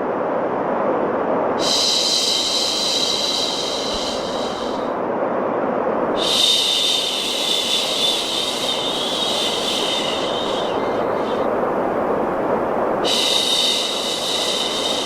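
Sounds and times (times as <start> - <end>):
white noise hiss: 0.0 - 15.0
person shushing: 6.2 - 15.0.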